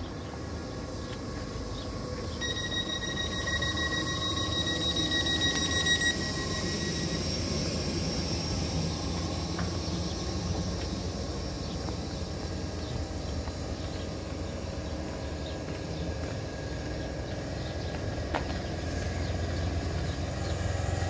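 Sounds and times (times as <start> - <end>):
train equipment humming: 0.0 - 21.0
high-pitched door warning tone: 2.3 - 12.2.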